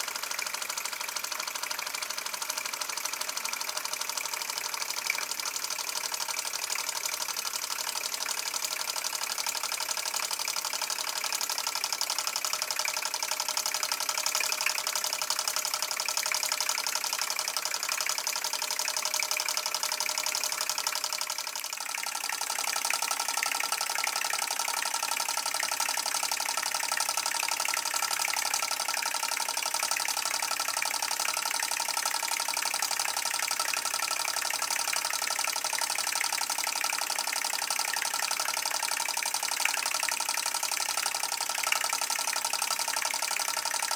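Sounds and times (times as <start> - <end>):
model steam engine running: 0.0 - 43.9.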